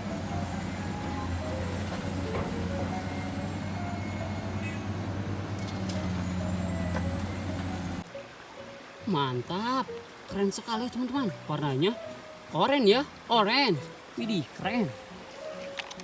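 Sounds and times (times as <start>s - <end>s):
low engine drone: 0.0s - 8.0s.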